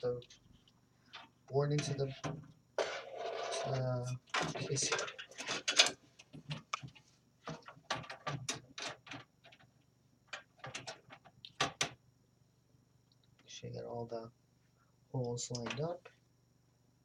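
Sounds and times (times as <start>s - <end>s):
motherboard clicking and tapping in metal case: 7.5s - 9.7s, 10.3s - 12.0s.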